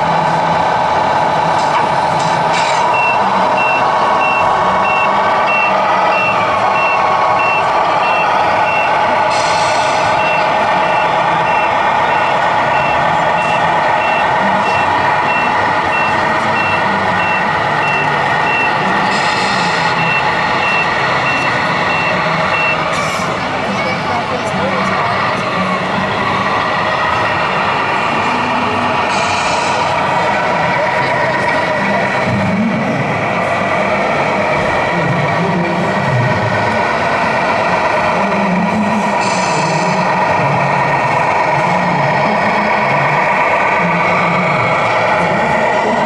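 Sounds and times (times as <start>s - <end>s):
steady mechanical whine: 0.0s - 46.0s
reversing beeper: 2.6s - 23.9s.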